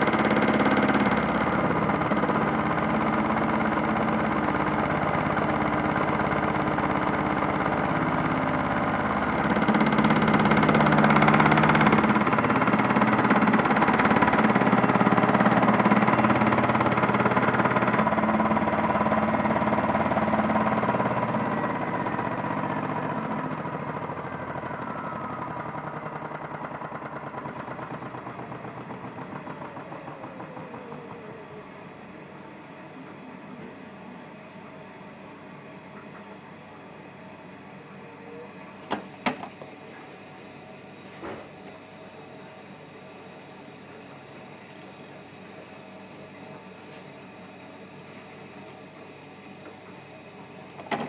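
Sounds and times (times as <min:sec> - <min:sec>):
toy washing machine motor spinning: 0:00.0 - 0:32.0.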